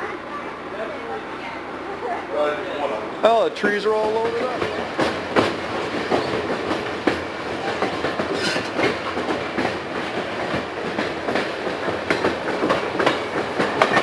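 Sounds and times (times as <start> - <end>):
train car rumbling on track: 0.0 - 14.0
wheels clicking over rail joints: 3.2 - 14.0.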